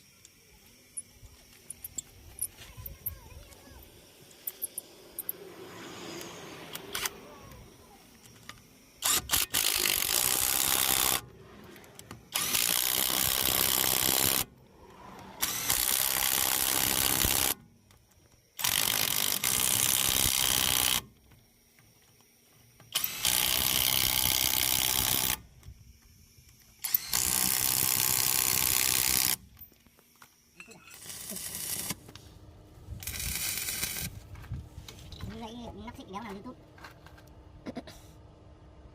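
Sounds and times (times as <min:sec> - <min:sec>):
power tool running in bursts: 0:00.0 - 0:17.6, 0:18.6 - 0:21.1, 0:22.9 - 0:25.4, 0:26.8 - 0:29.4.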